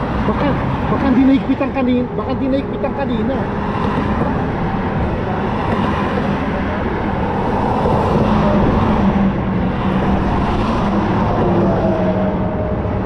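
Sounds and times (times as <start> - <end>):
wind noise on microphone: 3.4 - 13.0.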